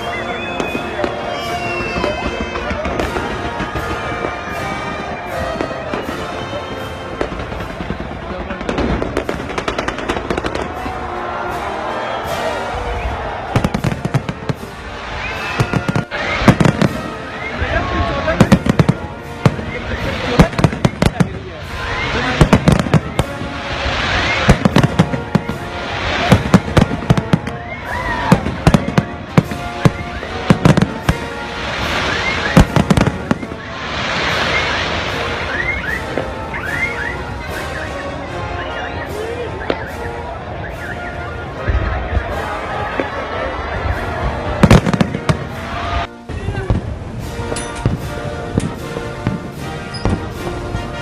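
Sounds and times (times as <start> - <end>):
whistles from rising shells: 0.0 - 7.5, 11.6 - 13.8, 15.1 - 17.8, 21.7 - 25.0, 31.8 - 41.4
fireworks crackling: 0.0 - 51.0
fireworks sharp bangs: 0.0 - 51.0.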